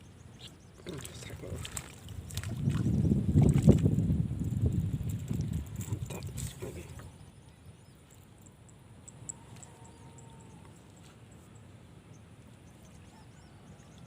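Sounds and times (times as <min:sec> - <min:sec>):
faint high bird chirps: 0:06.9 - 0:14.0.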